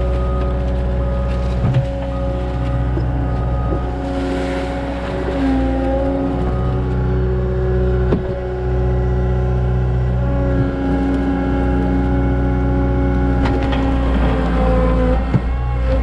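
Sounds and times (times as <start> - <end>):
diesel engine under load: 0.0 - 16.0.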